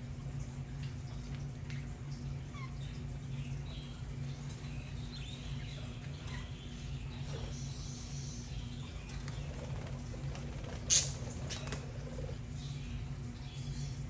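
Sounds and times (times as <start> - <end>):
steady low hum: 0.0 - 14.0
budgerigars chattering: 9.2 - 12.4.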